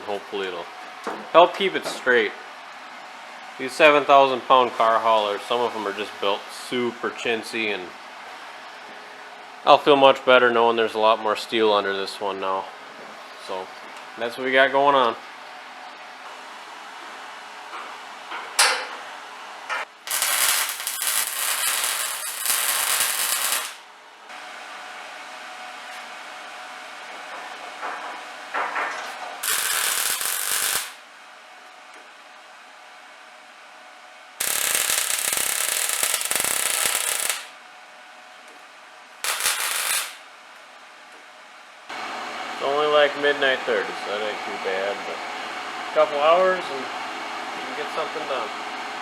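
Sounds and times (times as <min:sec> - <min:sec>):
arc welding crackle: 0:19.9 - 0:23.9, 0:29.4 - 0:31.0, 0:34.4 - 0:37.6, 0:39.2 - 0:40.2.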